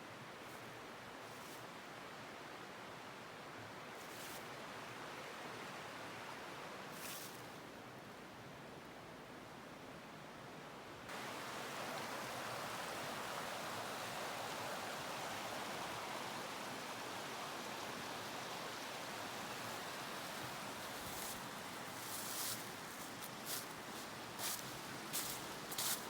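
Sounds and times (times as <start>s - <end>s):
stream water rushing: 11.1s - 26.0s.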